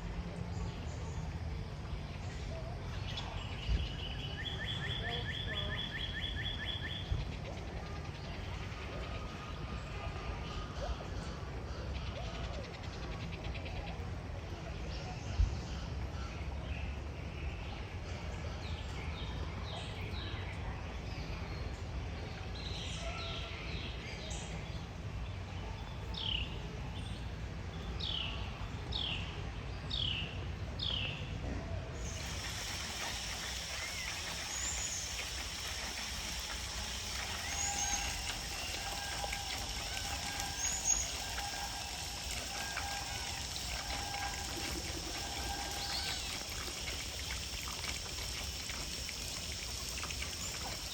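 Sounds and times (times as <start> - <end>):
outdoor background noise: 0.0 - 50.9
faint high chirps: 32.0 - 50.9
steady hiss: 32.0 - 50.9
trickling water: 32.0 - 50.9.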